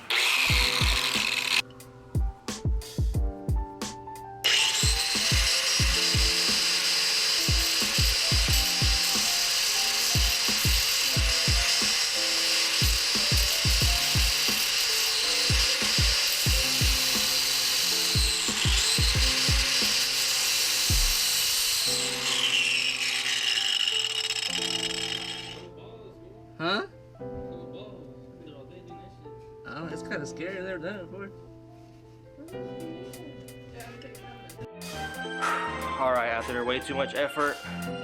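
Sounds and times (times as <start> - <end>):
cutting wheel grinding metal pipe: 0.0 - 1.6, 4.4 - 25.6
instrumental beat with kick drum: 2.2 - 6.6, 7.5 - 9.3, 10.2 - 11.9, 12.8 - 14.5, 15.5 - 17.2, 18.2 - 19.9, 20.9 - 21.2.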